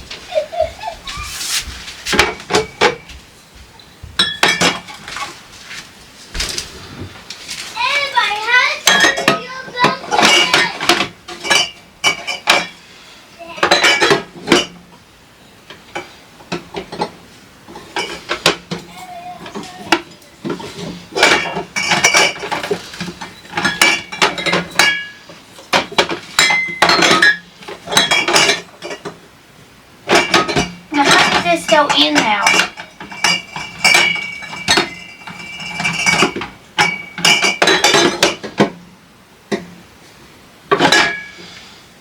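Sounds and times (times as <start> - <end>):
dishes and cutlery clinking: 2.0 - 3.2, 4.2 - 5.4, 7.8 - 12.8, 13.6 - 14.8, 15.7 - 29.2, 30.1 - 38.8, 40.7 - 41.6.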